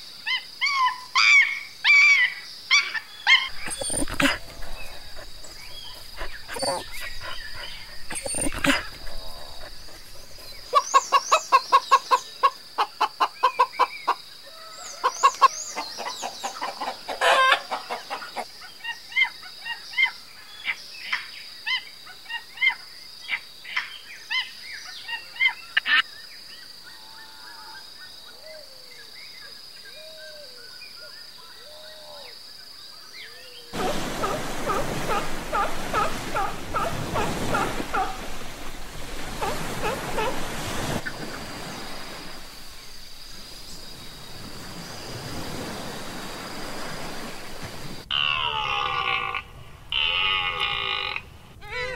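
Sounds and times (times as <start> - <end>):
repeated animal calls: 2.7 - 13.9, 33.8 - 43.0, 48.1 - 51.9
chirps and squeaks: 3.3 - 11.6
surf on a beach: 3.5 - 12.7, 33.7 - 48.9.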